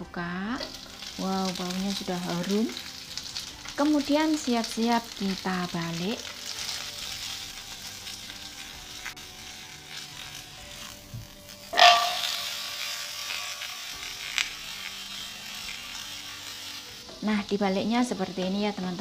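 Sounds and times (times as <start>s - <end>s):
potato slices sizzling in a pan: 0.2s - 19.0s
metallic ring of pan: 11.7s - 12.5s.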